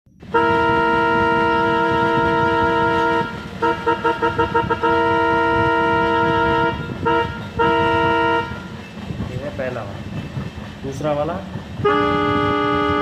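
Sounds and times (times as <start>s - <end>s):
train horn blasts and toots: 0.2s - 9.0s, 11.8s - 13.0s.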